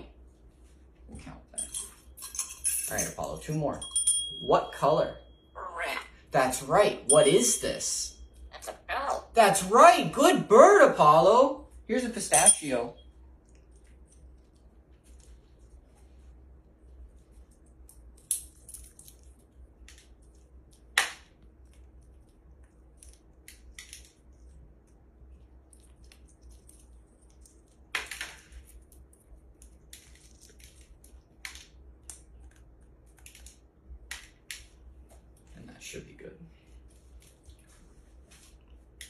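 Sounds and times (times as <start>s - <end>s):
parrot cracking nut shell: 17.7s - 24.3s.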